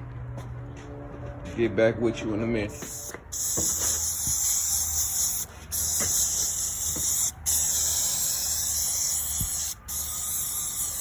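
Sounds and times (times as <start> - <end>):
aerosol can spraying: 2.8 - 11.0.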